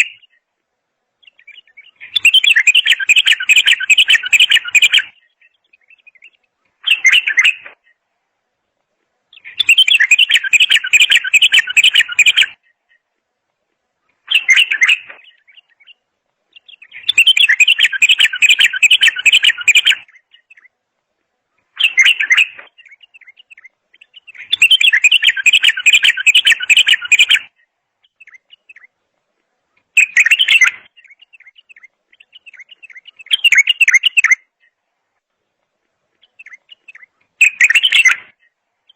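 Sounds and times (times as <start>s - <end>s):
songbird trilling: 1.2s - 7.8s, 9.3s - 12.7s, 14.2s - 20.7s, 21.8s - 28.9s, 30.0s - 34.8s, 36.2s - 38.9s.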